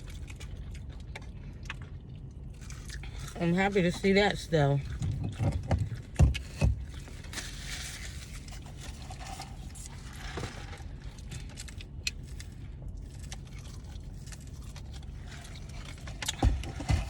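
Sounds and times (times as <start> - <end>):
car cabin rumble: 3.2 - 11.2.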